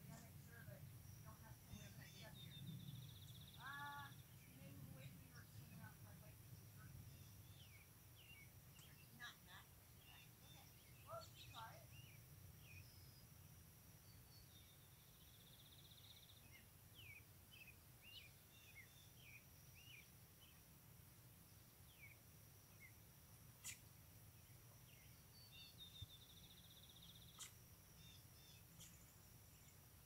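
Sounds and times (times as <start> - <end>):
faint birds chirping: 0.0 - 30.0
faint high hum: 0.0 - 30.0
faint clicks: 8.7 - 9.1.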